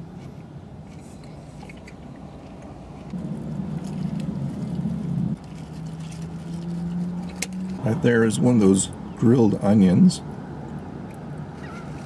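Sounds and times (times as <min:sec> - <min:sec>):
low hum inside a car: 0:00.0 - 0:06.2
person chewing crunchy food: 0:00.9 - 0:07.4
louder low hum: 0:02.5 - 0:10.3
paper wrapper rustling: 0:03.6 - 0:07.4.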